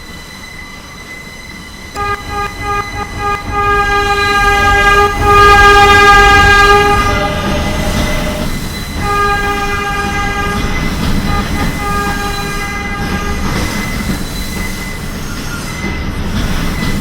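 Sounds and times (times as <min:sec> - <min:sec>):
steel wheels squealing on rails: 0:00.0 - 0:17.0
subway train rumbling: 0:00.0 - 0:17.0.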